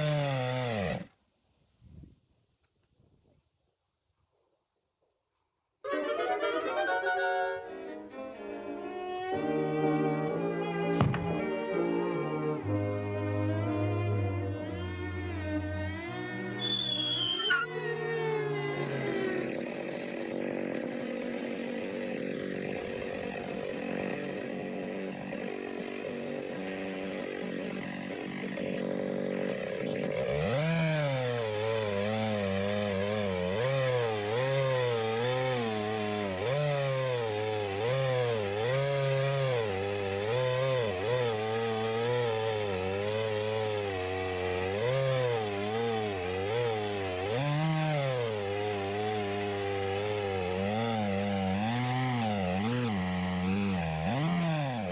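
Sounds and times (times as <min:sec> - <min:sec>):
chainsaw ripping a log: 0:00.0 - 0:01.1, 0:18.7 - 0:54.9.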